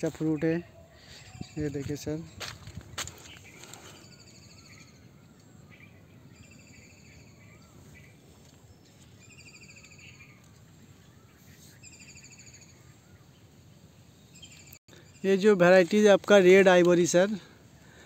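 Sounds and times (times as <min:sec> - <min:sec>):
buzzy trilled bird calls: 0:05.7 - 0:13.5.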